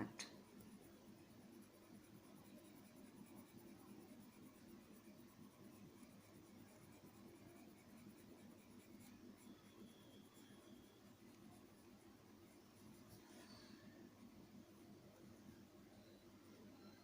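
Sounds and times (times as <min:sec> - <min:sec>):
pencil scratching on paper: 0:00.4 - 0:13.6.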